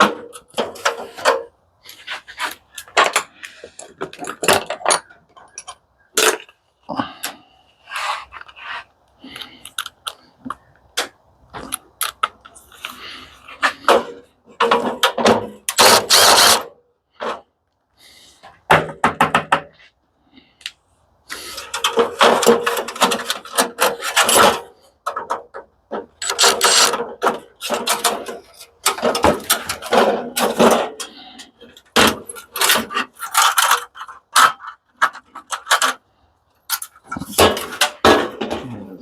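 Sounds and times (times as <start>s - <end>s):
metal parts clicking and clattering: 0.0s - 6.6s, 21.4s - 36.0s, 36.6s - 39.0s.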